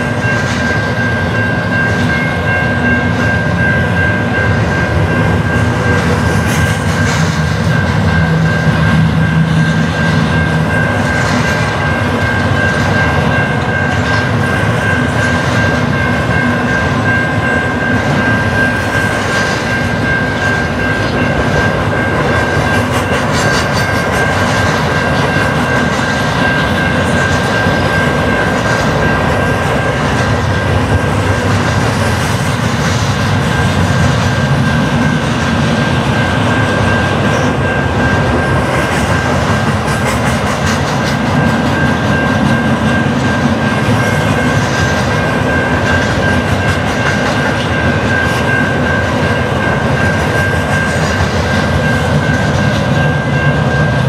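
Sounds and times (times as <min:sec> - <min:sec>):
freight train cars rolling past: 0:00.0 - 0:54.0
steady high-pitched tone: 0:00.0 - 0:54.0.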